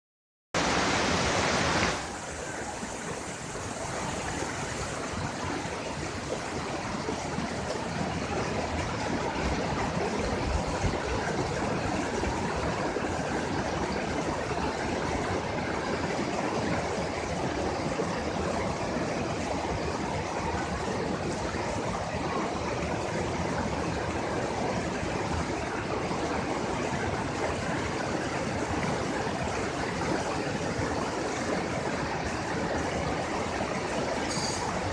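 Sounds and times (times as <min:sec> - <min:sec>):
waterfall rushing: 0:00.6 - 0:10.8.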